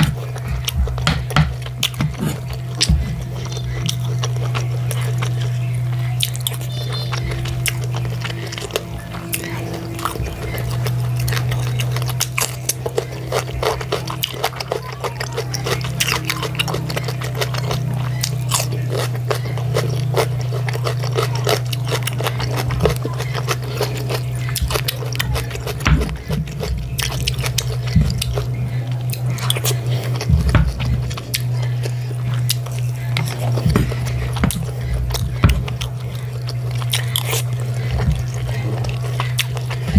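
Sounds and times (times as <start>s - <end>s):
fork scraping a plate: 0.0s - 4.0s
steady low hum: 0.0s - 39.9s
wet chewing and smacks: 0.0s - 39.9s.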